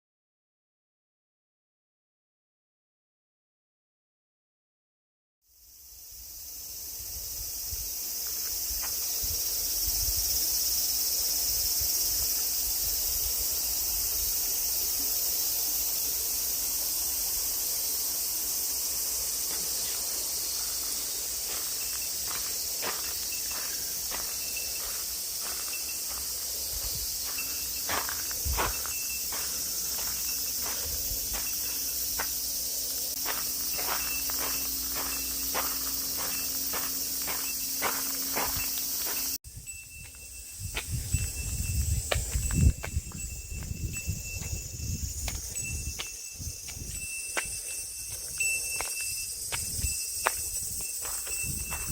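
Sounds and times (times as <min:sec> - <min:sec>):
insects droning: 0:05.5 - 0:51.9
footsteps: 0:19.4 - 0:39.4, 0:40.0 - 0:51.9.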